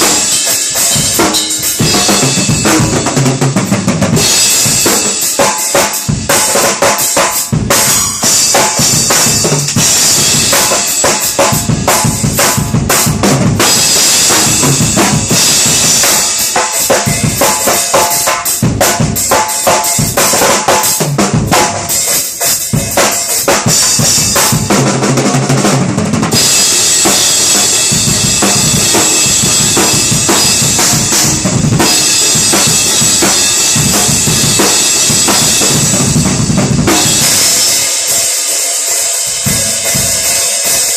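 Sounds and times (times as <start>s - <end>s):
bass drum: 0.0s - 5.1s, 7.5s - 16.3s, 20.0s - 21.9s, 23.5s - 38.0s
snare drum: 0.0s - 40.9s.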